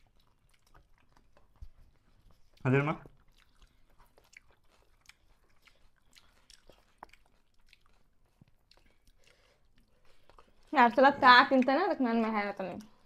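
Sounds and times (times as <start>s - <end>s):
faint chewing: 0.0s - 13.0s.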